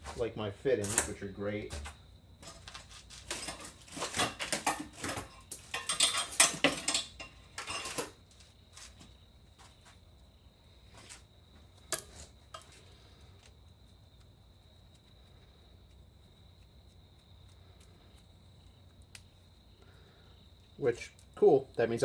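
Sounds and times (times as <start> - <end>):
metal fittings clinking: 2.6 - 8.1.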